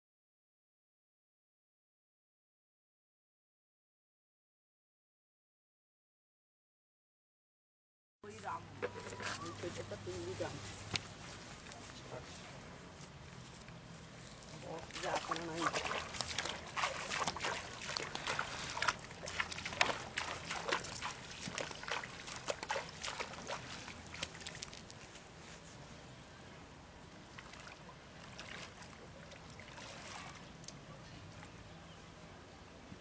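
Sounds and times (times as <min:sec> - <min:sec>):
water splashing and sloshing: 0:08.7 - 0:26.0, 0:27.1 - 0:31.7.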